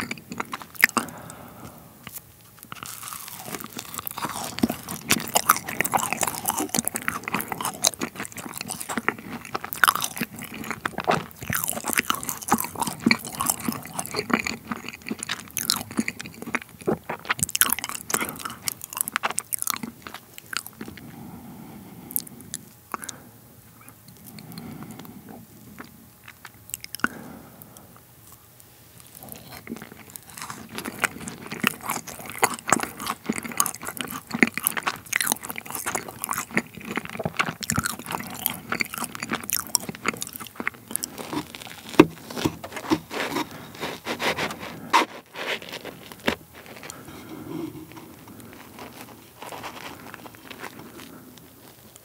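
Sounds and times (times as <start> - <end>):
macaron shell crunching: 2.1 - 21.0, 29.1 - 47.1, 47.9 - 52.0.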